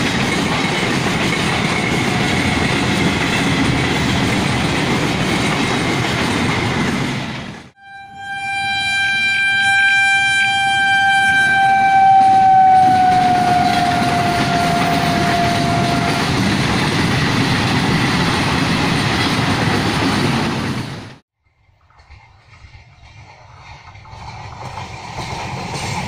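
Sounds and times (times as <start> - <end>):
train horn: 7.8 - 16.5.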